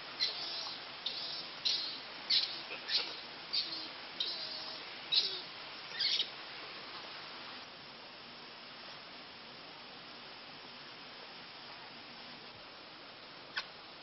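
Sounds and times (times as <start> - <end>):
faint hiss: 0.0 - 14.0
bird chirping: 0.2 - 6.3.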